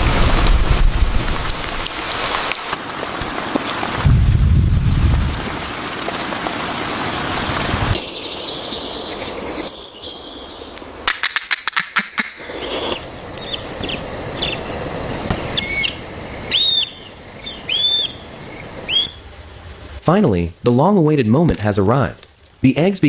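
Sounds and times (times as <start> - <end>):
rain hiss: 0.0 - 11.1, 12.4 - 21.2
woodpecker chirps: 8.0 - 14.7, 15.3 - 19.2.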